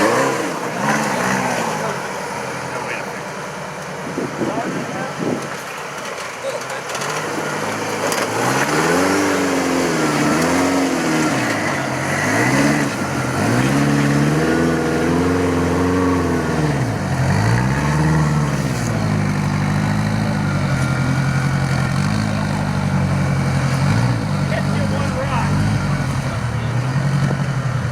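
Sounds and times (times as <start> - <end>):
engine revving: 0.0 - 27.9.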